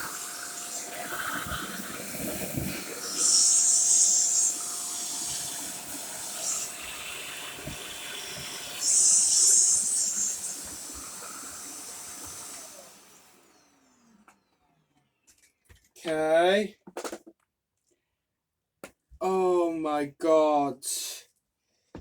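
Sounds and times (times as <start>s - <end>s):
vacuum cleaner running: 0.0s - 14.6s
vacuum motor spinning down: 0.0s - 14.6s.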